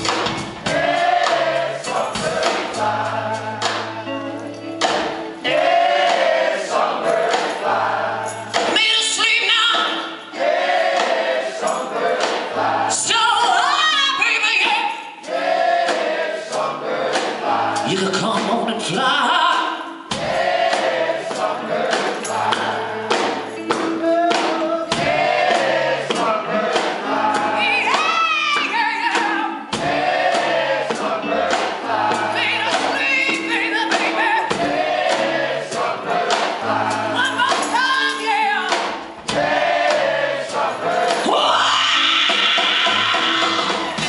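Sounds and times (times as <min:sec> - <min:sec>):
live rock ballad band: 0:00.0 - 0:08.8, 0:20.1 - 0:44.0
wordless singing: 0:00.6 - 0:44.0.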